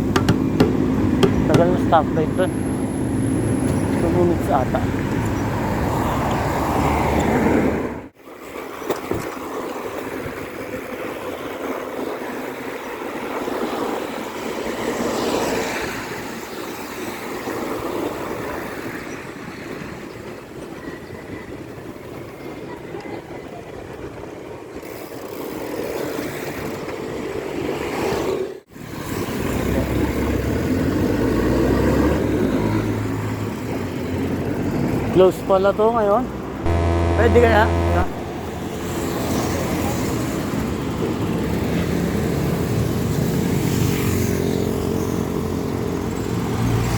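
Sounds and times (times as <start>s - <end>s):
low traffic rumble: 0.0s - 8.1s
traffic rushing: 0.0s - 8.2s, 28.6s - 46.9s.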